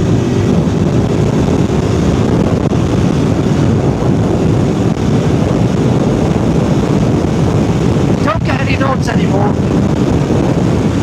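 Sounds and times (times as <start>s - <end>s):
motorcycle engine running: 0.0s - 11.0s
wind noise: 0.0s - 11.0s.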